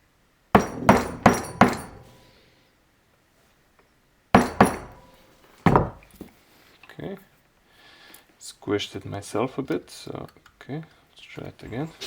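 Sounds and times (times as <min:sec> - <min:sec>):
metal engine parts clinking: 0:00.6 - 0:02.3, 0:04.4 - 0:06.2.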